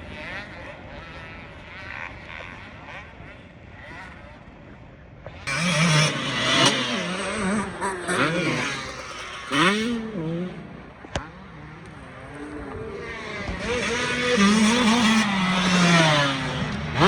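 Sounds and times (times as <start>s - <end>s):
racing engines revving: 0.0s - 4.6s, 5.4s - 17.0s.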